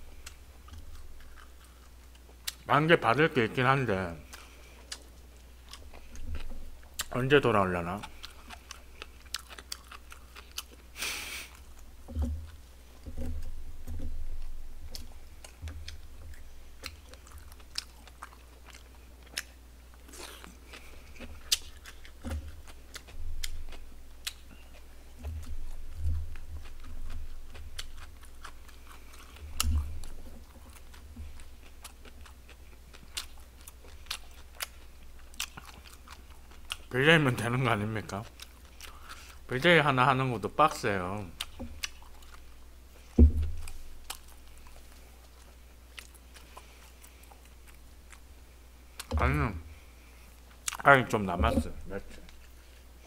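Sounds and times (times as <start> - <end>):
person chewing: 0.0 - 2.7, 4.1 - 39.7, 40.4 - 53.0
dull low bumps: 43.0 - 44.3, 51.4 - 52.3.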